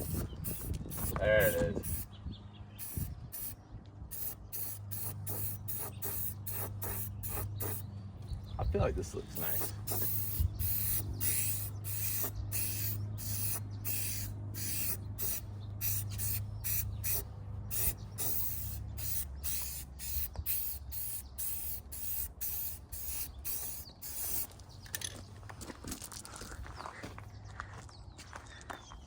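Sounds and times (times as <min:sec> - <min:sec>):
spray can hissing: 0:00.0 - 0:02.0, 0:02.8 - 0:07.8, 0:09.4 - 0:24.5.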